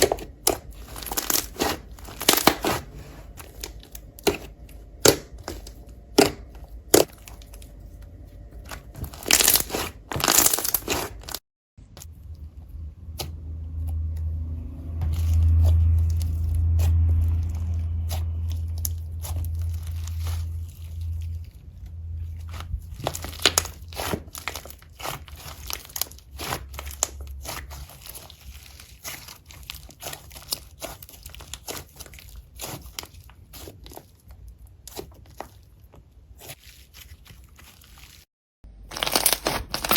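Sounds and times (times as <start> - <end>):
slime crackling and popping: 0.0 - 2.8, 8.6 - 11.4, 22.4 - 35.8
low rumble: 0.2 - 24.8.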